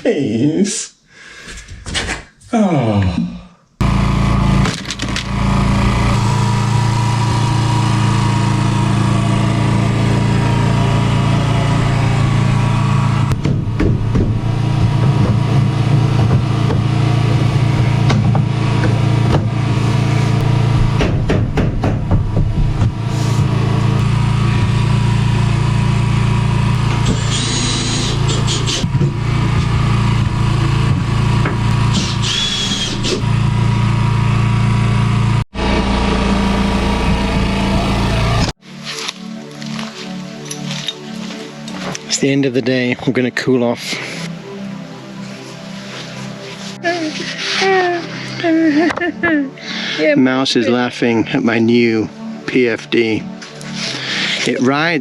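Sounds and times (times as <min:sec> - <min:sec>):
engine running steadily: 0:03.8 - 0:38.5.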